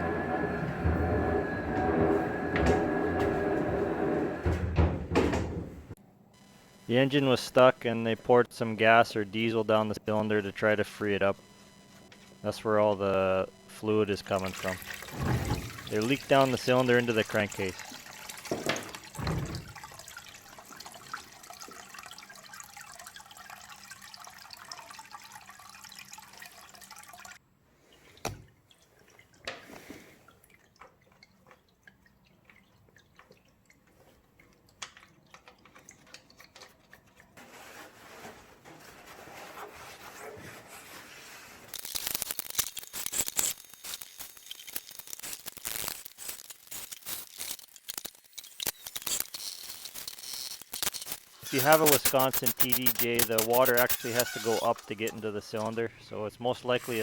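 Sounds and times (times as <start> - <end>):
liquid dripping and trickling: 14.4 - 37.4
crackling noise: 41.4 - 55.7.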